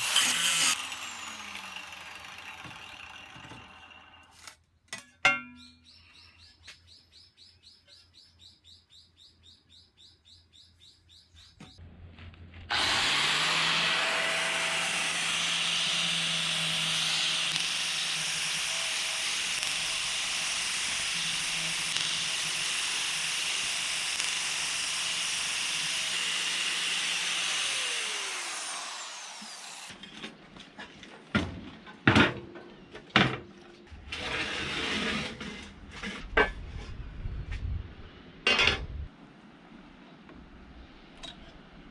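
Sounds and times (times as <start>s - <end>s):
power tool cutting steel: 0.0s - 4.6s, 12.7s - 30.0s.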